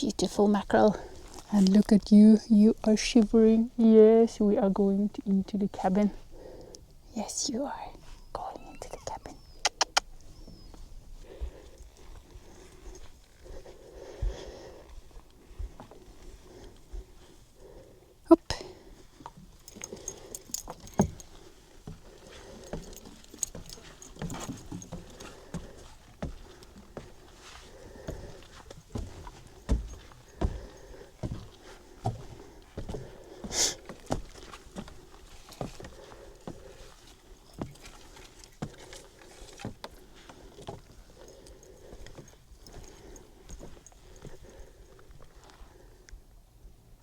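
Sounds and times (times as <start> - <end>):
slow footsteps thudding: 10.4 - 17.6, 18.9 - 45.4
light clicks and clinks: 19.2 - 45.6.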